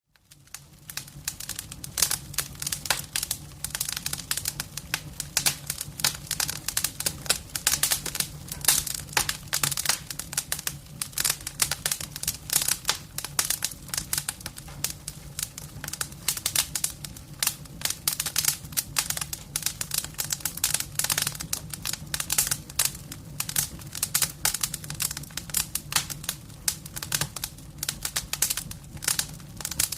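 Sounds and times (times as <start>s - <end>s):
fire crackling and popping: 0.1s - 29.9s.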